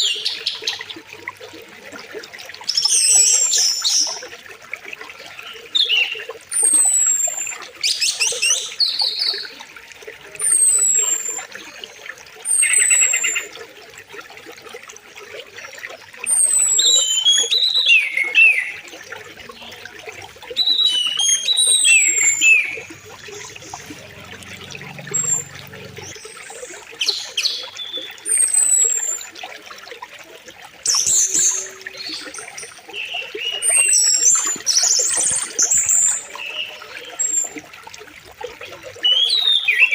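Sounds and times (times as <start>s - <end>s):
river water flowing: 0.0s - 39.9s
bird chirping warbled phrases: 20.6s - 26.2s.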